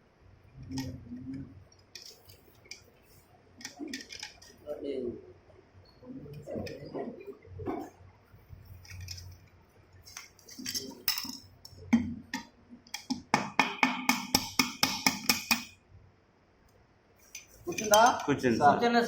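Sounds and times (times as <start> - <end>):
metal parts clinking: 8.8 - 9.4, 10.1 - 11.5.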